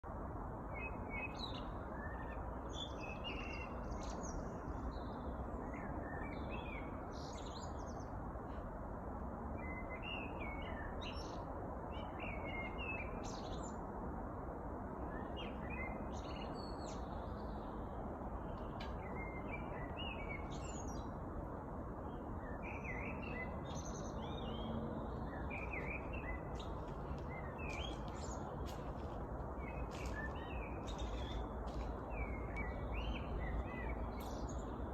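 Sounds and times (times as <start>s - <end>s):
songbirds chirping and singing: 15.1s - 21.2s, 22.0s - 34.9s.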